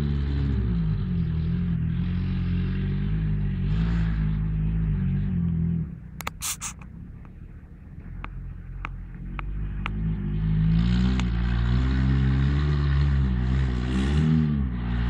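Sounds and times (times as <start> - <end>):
car engine revving: 6.7 - 15.0.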